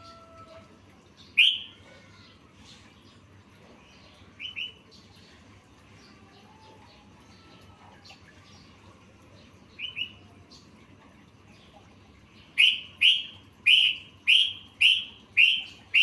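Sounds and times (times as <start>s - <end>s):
bird chirping: 1.2s - 1.8s, 12.4s - 16.0s.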